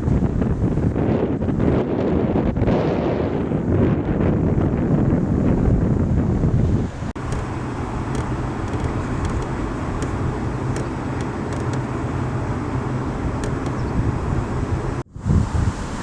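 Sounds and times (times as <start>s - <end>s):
car engine running: 7.2s - 15.0s
faint ticks: 7.2s - 15.0s.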